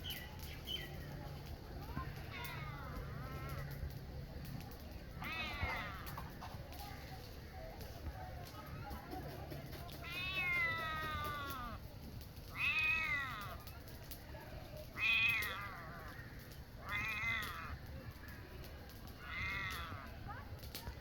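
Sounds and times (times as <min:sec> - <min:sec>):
cat meowing: 0:05.2 - 0:06.2, 0:10.0 - 0:11.8, 0:12.5 - 0:13.6, 0:15.0 - 0:16.2, 0:16.8 - 0:18.2, 0:19.2 - 0:20.1.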